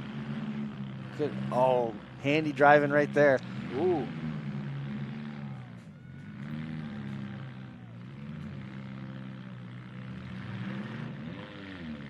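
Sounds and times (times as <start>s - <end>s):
truck engine revving: 0.0s - 12.0s
arena noise: 1.2s - 4.3s, 5.0s - 8.9s.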